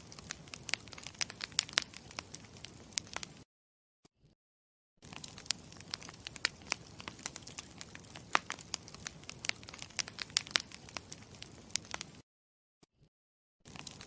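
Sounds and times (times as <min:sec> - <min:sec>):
campfire crackling and popping: 0:00.0 - 0:03.4, 0:05.0 - 0:12.2, 0:13.7 - 0:14.0.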